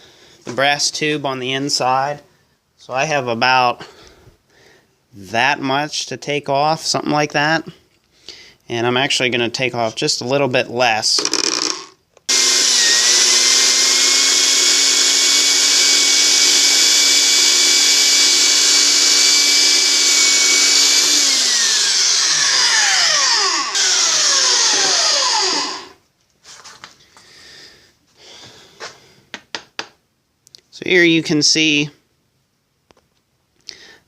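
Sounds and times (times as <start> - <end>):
band saw whining: 12.3 - 26.0.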